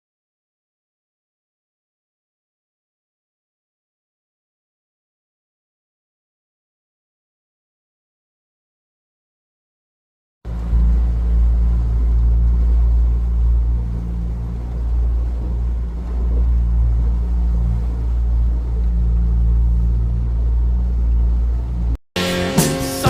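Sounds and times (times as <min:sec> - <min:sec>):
vehicle rumbling in motion: 0:10.5 - 0:23.0.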